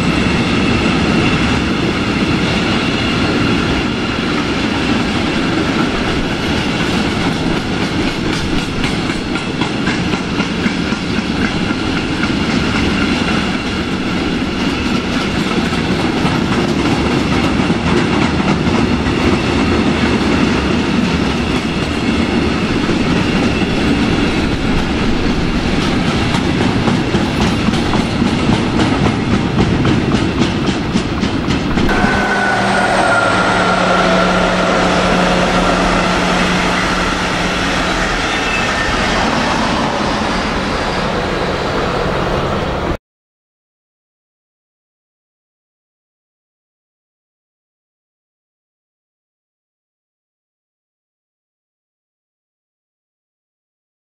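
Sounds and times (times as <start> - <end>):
train engine hum: 0.0 - 43.0
high whine: 31.9 - 42.8.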